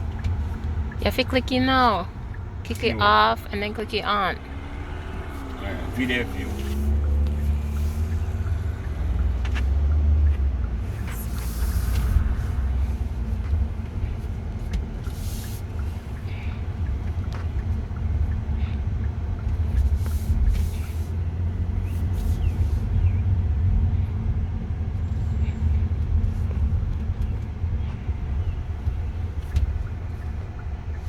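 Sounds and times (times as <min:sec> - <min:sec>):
car rumble inside cabin: 0:00.0 - 0:31.0.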